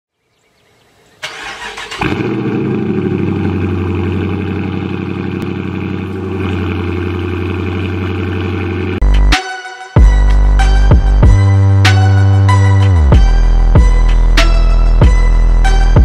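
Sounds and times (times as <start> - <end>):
starter motor cranking: 1.2 - 2.6
car engine starting and idling: 1.2 - 9.3.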